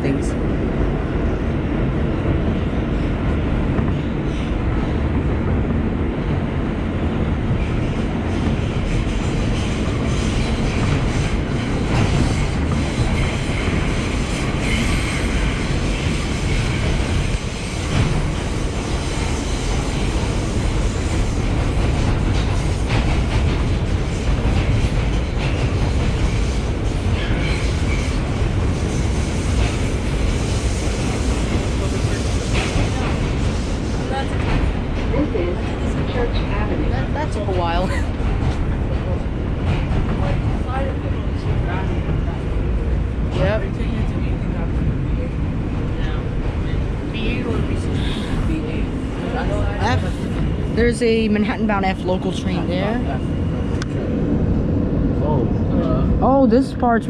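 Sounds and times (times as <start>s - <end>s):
steel wheels rumbling on rail: 0.0s - 57.0s
rail joint clicks: 7.5s - 36.5s.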